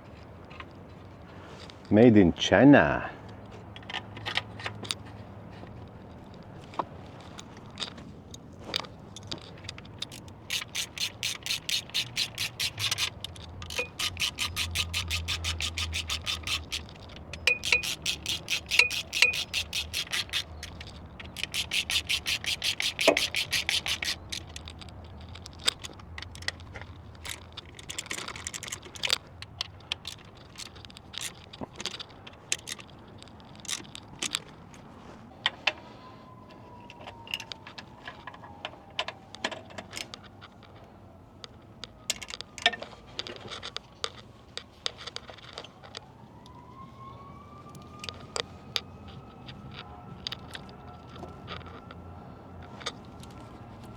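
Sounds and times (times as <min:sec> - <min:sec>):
socket ratchet clicking: 0:06.2 - 0:34.6.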